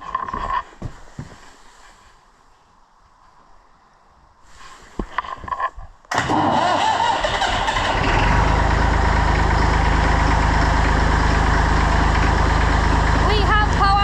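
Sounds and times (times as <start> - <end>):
tractor engine starting and idling: 6.1 - 14.0.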